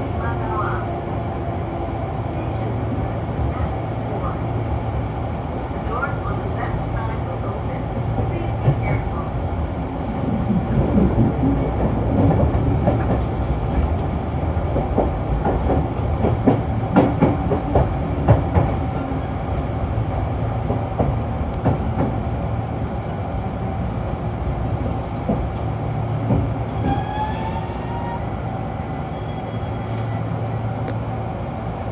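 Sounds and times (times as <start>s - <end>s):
train interior low rumble: 0.0s - 31.9s.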